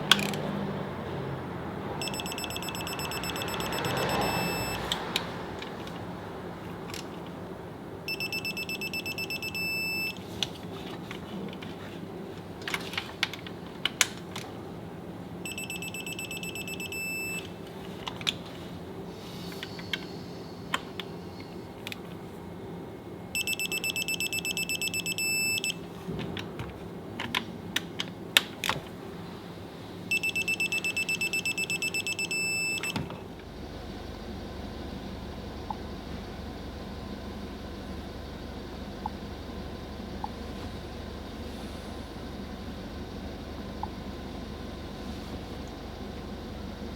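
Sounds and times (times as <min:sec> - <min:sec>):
steady hum: 0:00.0 - 0:46.9
rapid high electronic beeps: 0:02.0 - 0:04.8, 0:08.1 - 0:10.2, 0:15.5 - 0:17.4, 0:23.4 - 0:25.8, 0:30.1 - 0:32.9.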